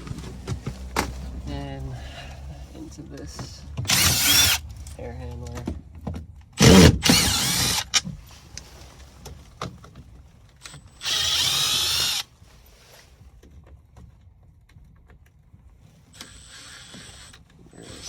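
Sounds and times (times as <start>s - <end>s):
power drill on sheet metal: 3.8s - 4.6s, 6.6s - 8.1s, 10.6s - 12.4s, 16.2s - 18.0s.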